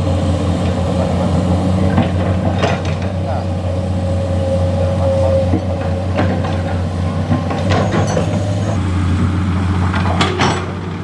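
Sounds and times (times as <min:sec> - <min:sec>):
diesel truck engine running: 0:00.0 - 0:11.0
sharp metallic clanks and knocks: 0:01.9 - 0:03.4, 0:05.3 - 0:08.8, 0:09.9 - 0:11.0.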